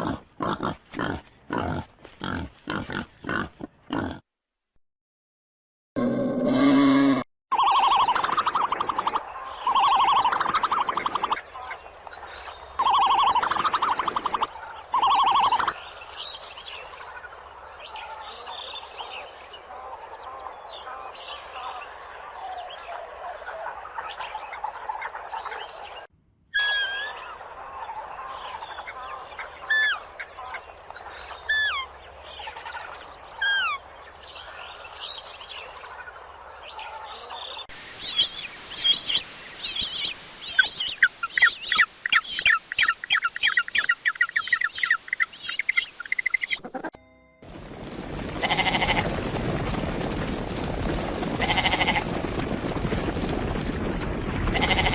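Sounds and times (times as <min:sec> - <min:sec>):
chorus of bird calls: 0:07.5 - 0:46.9
bird call falling in pitch: 0:26.6 - 0:27.1, 0:29.7 - 0:30.0, 0:31.5 - 0:31.9, 0:33.4 - 0:33.8
harsh animal call: 0:26.6 - 0:27.2, 0:29.7 - 0:30.0, 0:31.5 - 0:31.9, 0:33.4 - 0:33.8.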